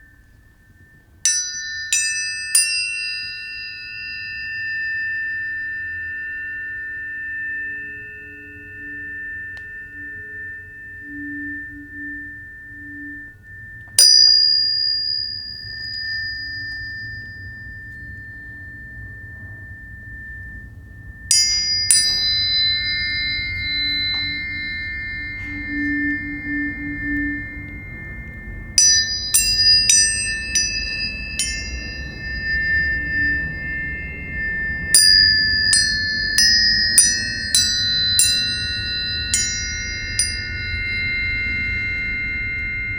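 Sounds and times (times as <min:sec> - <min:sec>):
tuning forks ringing: 0:00.0 - 0:42.9.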